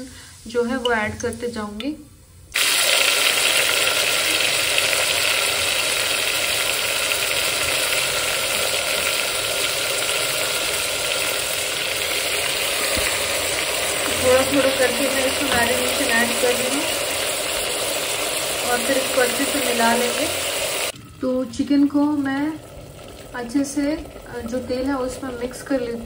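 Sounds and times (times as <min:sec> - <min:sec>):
chicken sizzling in oil: 0:02.6 - 0:21.0.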